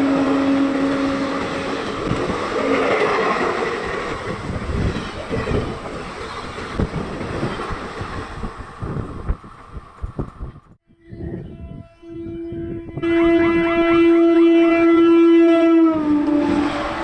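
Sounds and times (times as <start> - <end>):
train horn: 0.0 - 2.8, 11.0 - 17.0
rail and wind rush: 0.0 - 17.0.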